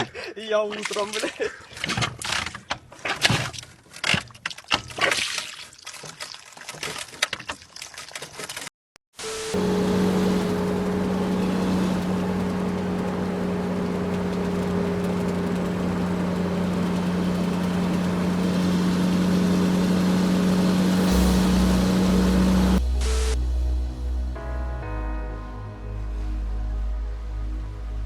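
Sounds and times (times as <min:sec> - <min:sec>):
engine drone: 0:09.2 - 0:24.6
road noise: 0:09.3 - 0:23.4
deep rumble: 0:09.6 - 0:28.0.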